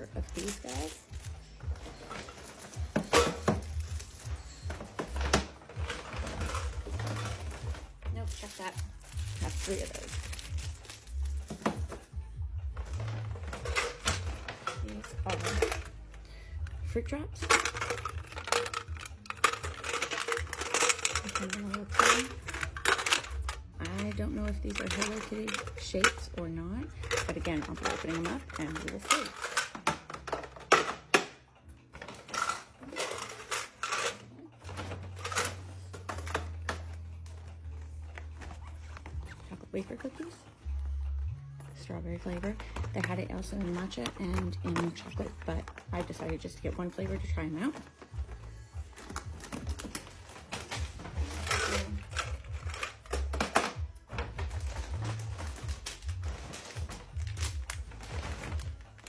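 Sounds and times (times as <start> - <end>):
plastic wrappers crinkling: 0.0 - 12.2, 12.8 - 31.4, 32.0 - 41.6, 42.2 - 59.0
snack packages clicking: 2.3 - 12.1, 17.4 - 26.3, 48.9 - 59.0.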